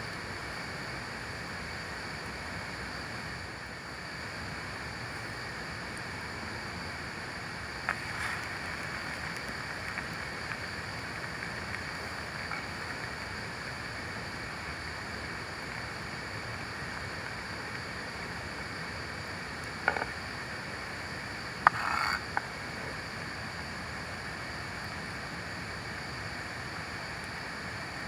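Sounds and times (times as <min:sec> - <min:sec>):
rain: 0:00.0 - 0:22.0.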